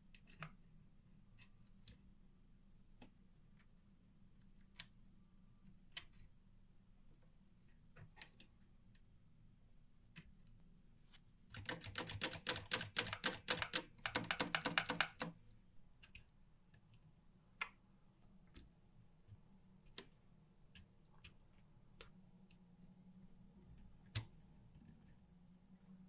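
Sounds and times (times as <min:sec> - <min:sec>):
typewriter keys clacking: 0:11.6 - 0:15.3.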